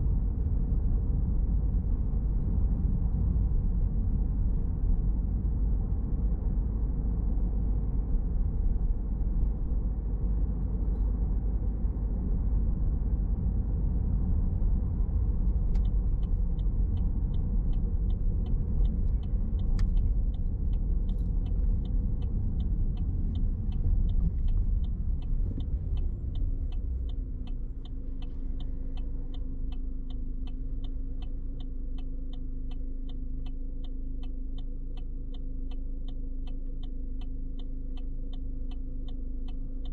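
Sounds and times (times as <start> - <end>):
car road and engine rumble: 0.0 - 39.9
turn signal clicking: 15.2 - 39.9.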